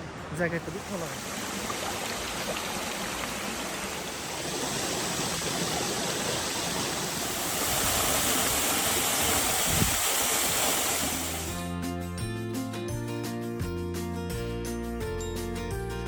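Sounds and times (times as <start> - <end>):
waterfall rushing: 0.3 - 11.6.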